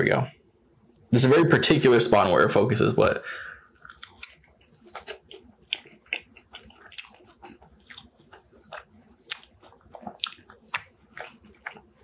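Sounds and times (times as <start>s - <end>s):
person chewing with mouth clicks: 3.7s - 12.0s.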